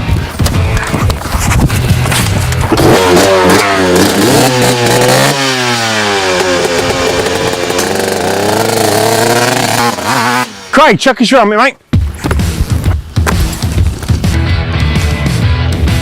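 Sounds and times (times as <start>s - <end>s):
dirt bike engine revving: 1.5s - 10.8s.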